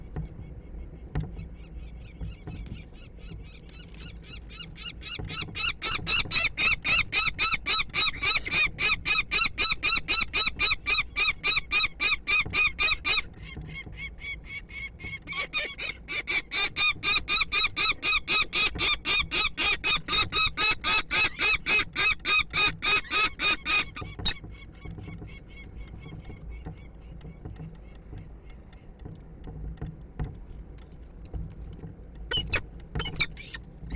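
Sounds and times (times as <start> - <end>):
falcons harsh rapid calls: 15.2 - 24.3.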